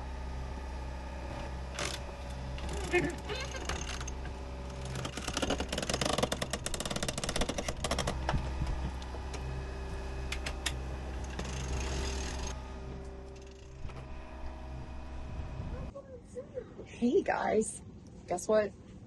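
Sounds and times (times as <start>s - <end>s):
machine hum: 0.0s - 18.2s
rapid mechanical clicking: 1.6s - 9.5s, 10.2s - 14.3s.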